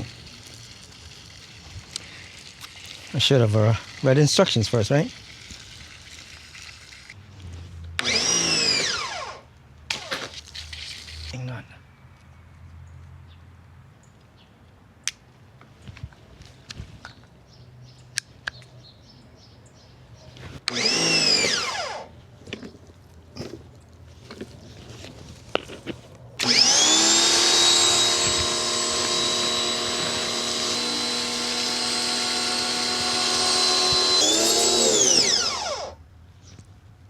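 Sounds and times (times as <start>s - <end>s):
pressure washer motor whining: 8.0s - 10.3s, 20.6s - 22.1s, 26.4s - 36.0s.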